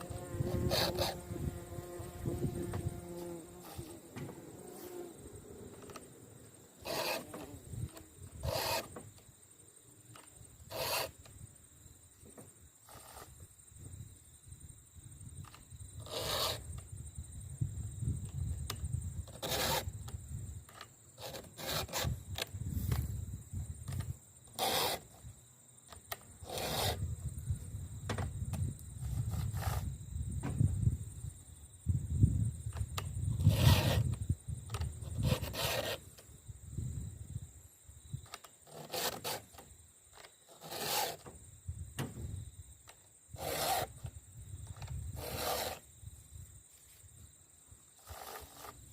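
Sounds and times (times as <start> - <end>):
file rasping on chainsaw teeth: 0.5 - 1.2, 6.8 - 7.3, 8.4 - 8.9, 10.7 - 11.1, 16.0 - 16.6, 24.6 - 25.0, 26.4 - 27.0, 33.4 - 34.1, 35.2 - 36.0, 38.7 - 39.6, 40.5 - 41.2, 43.4 - 44.0, 45.2 - 45.8, 48.0 - 48.8.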